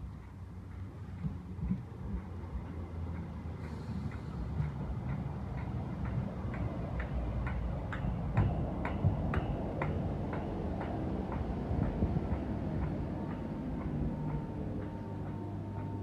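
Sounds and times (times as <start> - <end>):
train low rumble: 0.0 - 16.0
regular ticking: 0.2 - 16.0.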